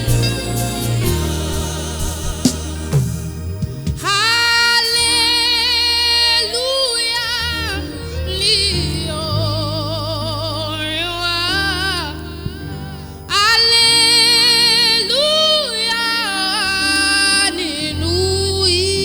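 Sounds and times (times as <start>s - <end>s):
steady bass accompaniment: 0.0s - 6.7s
person singing with vibrato: 0.0s - 19.0s.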